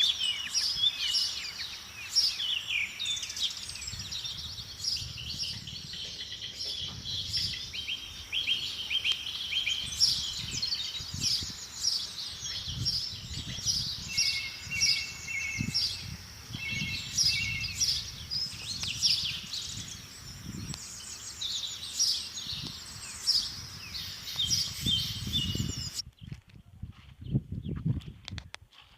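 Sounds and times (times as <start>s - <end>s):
wild birds chirping and trilling: 0.0s - 26.0s.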